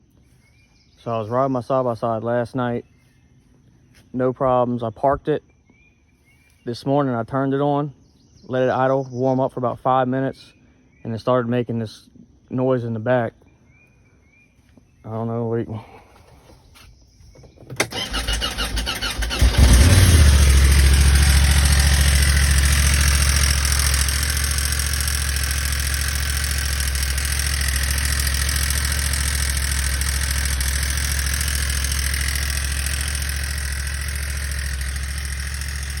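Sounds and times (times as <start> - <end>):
electric starter cranking engine: 17.4 - 36.0
engine idling: 17.7 - 36.0.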